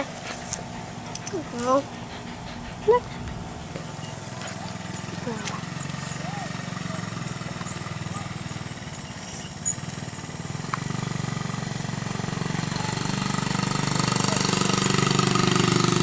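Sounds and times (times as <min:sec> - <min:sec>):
small motorcycle engine putter: 0:03.8 - 0:11.4.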